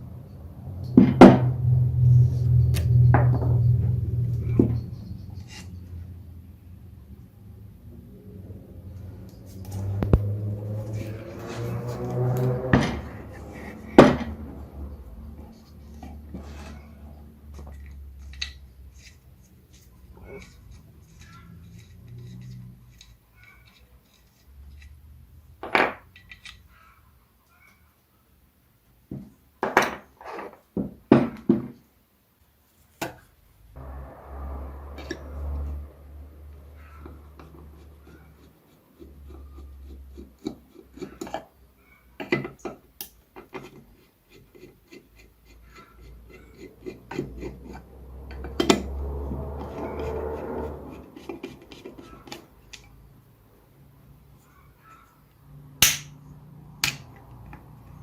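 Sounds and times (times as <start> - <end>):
metal scraping: 0.5 - 6.3, 7.9 - 25.2, 33.8 - 42.0, 43.5 - 53.0.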